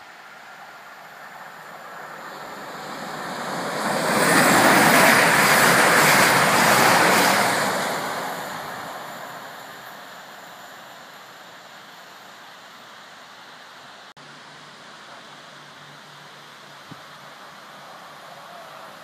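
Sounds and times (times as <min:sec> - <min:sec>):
train passing rush: 0:00.0 - 0:12.7.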